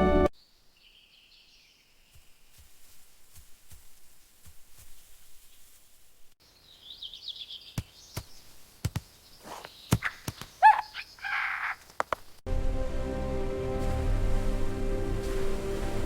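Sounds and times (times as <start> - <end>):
harsh rasping bird call: 9.4 - 11.9
short downward bird calls: 9.4 - 12.0
bird warbling trill: 9.5 - 11.8.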